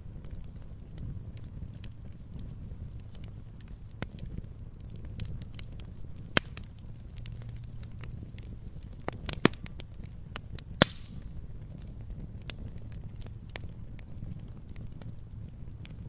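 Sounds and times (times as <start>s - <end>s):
campfire wood crackling: 0.0s - 16.0s
low rumble of burning fire: 0.0s - 16.0s
sharp loud wood snaps: 10.8s - 11.2s.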